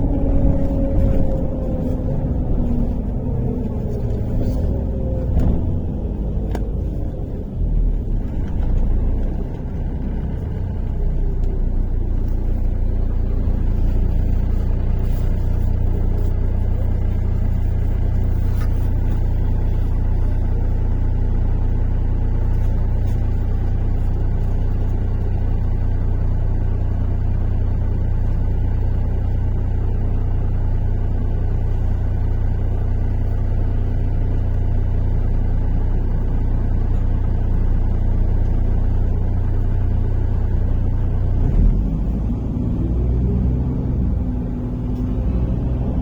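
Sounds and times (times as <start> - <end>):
bus jolt: 0.0 - 10.0
bus engine and road rumble: 0.0 - 46.0.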